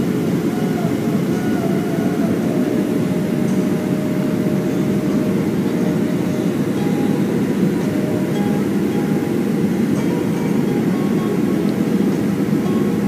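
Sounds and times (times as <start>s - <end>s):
airplane cabin engine rumble: 0.0s - 13.0s
faint steady tones: 0.0s - 13.0s.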